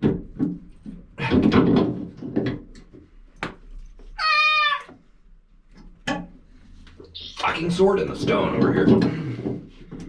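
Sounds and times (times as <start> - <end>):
cat meowing: 4.2 - 4.9.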